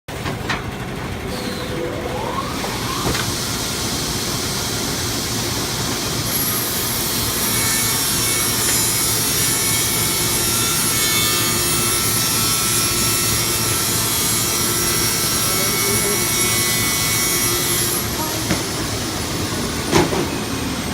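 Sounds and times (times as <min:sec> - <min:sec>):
motorised machine running: 0:00.1 - 0:20.9.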